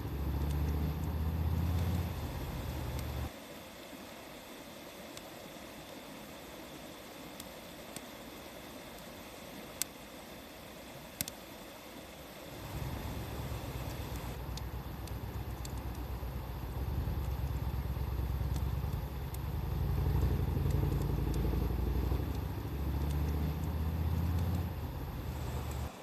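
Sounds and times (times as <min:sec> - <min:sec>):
wood fire crackling: 0:00.0 - 0:03.3, 0:11.0 - 0:26.0.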